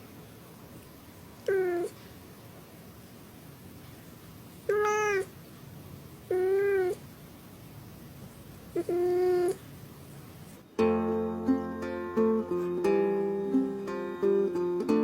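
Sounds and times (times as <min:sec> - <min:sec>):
cat chirp: 0:01.4 - 0:02.0, 0:04.6 - 0:05.4, 0:06.3 - 0:07.1, 0:08.7 - 0:09.7
cat meowing: 0:01.4 - 0:02.0, 0:04.6 - 0:05.4, 0:06.3 - 0:07.0, 0:08.7 - 0:09.6.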